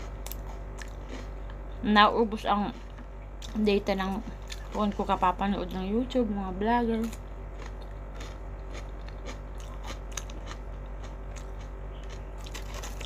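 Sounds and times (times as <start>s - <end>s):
person chewing crunchy food: 0.0s - 1.7s, 2.7s - 5.2s, 7.0s - 13.0s
low steady hum: 0.0s - 13.0s.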